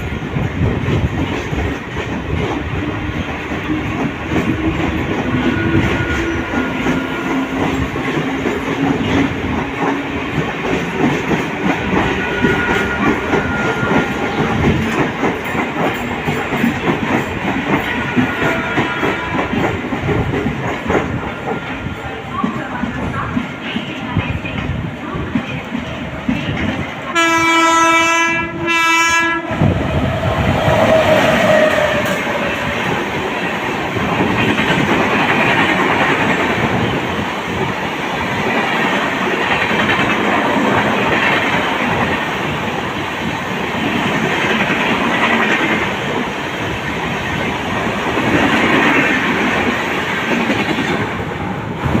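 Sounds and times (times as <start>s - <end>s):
train wheels clacking on rails: 0.0s - 52.0s
train horn blasts: 5.3s - 7.6s, 12.0s - 14.2s, 18.0s - 19.6s, 27.1s - 29.7s.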